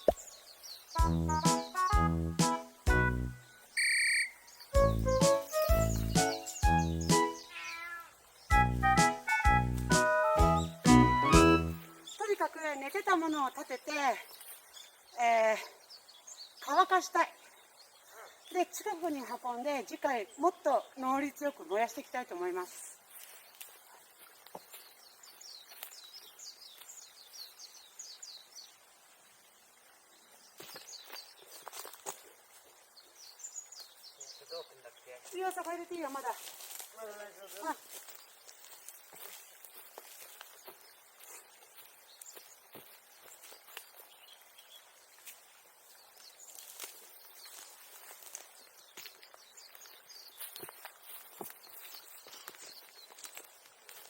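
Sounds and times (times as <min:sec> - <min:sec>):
small bird singing high notes: 0:03.4 - 0:12.2
faint bird chirps: 0:03.5 - 0:04.8, 0:05.4 - 0:08.5.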